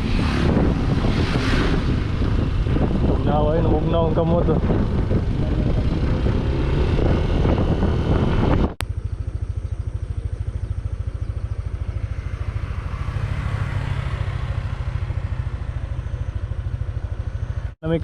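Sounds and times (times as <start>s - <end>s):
wind and road rush: 0.0s - 18.0s
scooter engine idling: 8.8s - 18.0s.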